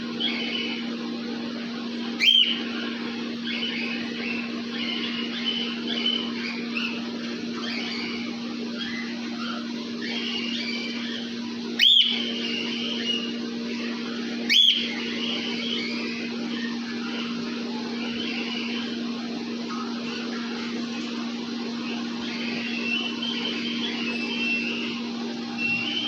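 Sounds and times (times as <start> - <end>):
steady low hum: 0.0 - 26.0
upward sweeping whistled calls: 2.2 - 2.7, 7.6 - 13.4, 14.1 - 17.3, 21.8 - 26.0
cockatiels chirping: 2.2 - 2.8, 3.5 - 13.3, 21.8 - 24.9.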